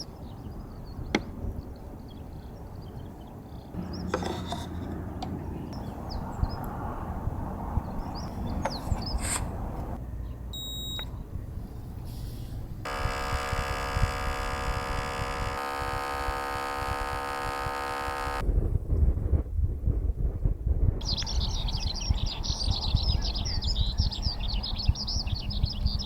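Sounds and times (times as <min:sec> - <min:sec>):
wind on microphone: 0:04.8 - 0:10.0, 0:12.6 - 0:26.0
espresso machine pump buzzing: 0:12.9 - 0:18.4.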